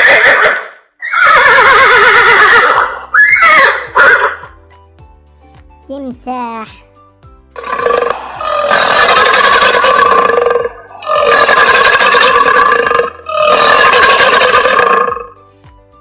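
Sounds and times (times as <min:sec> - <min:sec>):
crocodile harsh calls: 0:00.0 - 0:04.4, 0:07.6 - 0:15.3.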